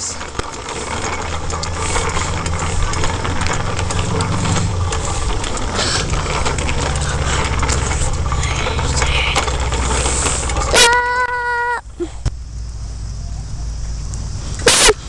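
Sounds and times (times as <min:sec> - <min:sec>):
small rattles and clicks: 0:00.0 - 0:11.8
bicycle rolling noise: 0:00.0 - 0:15.0.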